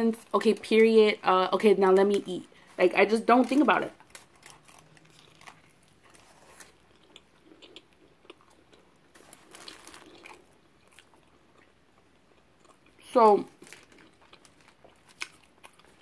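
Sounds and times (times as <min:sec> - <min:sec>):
faint chewing with mouth clicks: 0:04.0 - 0:16.0.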